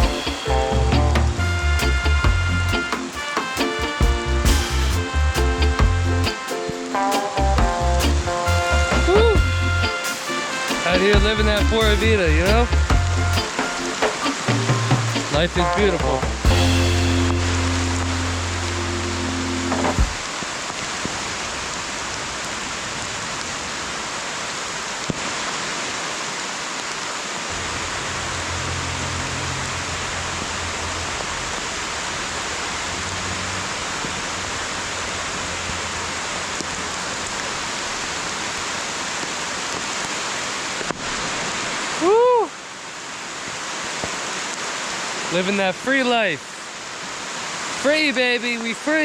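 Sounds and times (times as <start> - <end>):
rain hissing: 0.0 - 49.0
river water rushing: 8.5 - 15.7, 16.4 - 49.0.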